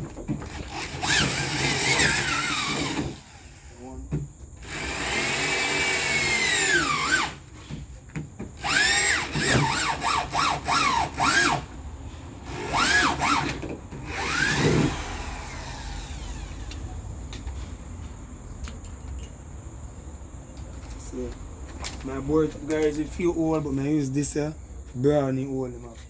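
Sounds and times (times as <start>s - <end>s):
power drill whining in pulses: 0.4s - 3.9s, 4.6s - 7.5s, 8.6s - 11.8s, 12.4s - 16.8s.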